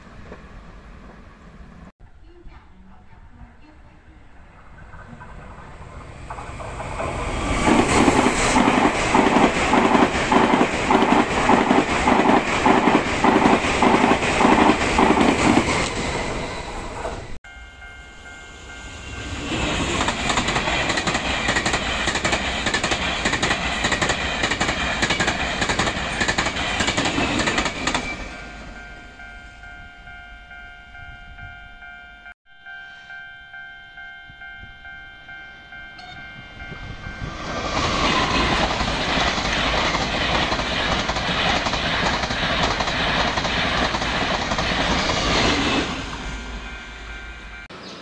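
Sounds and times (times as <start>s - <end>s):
train wheels clattering over joints: 4.8s - 16.0s.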